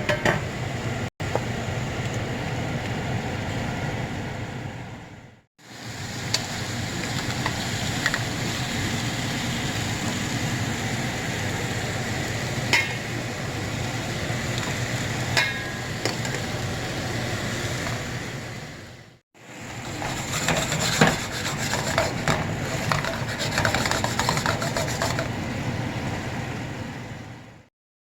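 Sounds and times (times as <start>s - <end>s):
cooking hiss: 5.6s - 25.5s
utensil rattle: 19.8s - 25.3s
utensils knocking: 19.9s - 25.3s.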